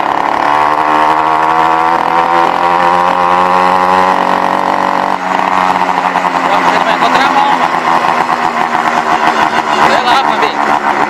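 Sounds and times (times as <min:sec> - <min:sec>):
small two-stroke engine running: 0:00.0 - 0:11.0.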